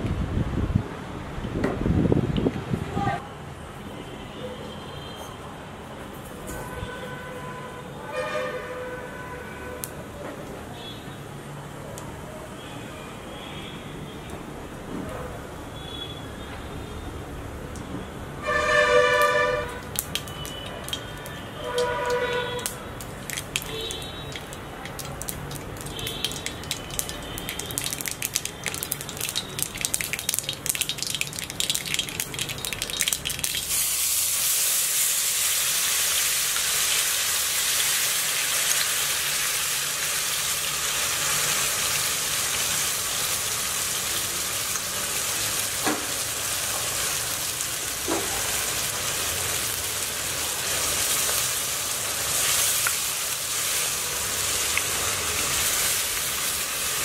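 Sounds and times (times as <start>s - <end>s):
hot oil crackling and spitting: 17.7s - 57.0s
paste sizzling in oil: 18.7s - 57.0s.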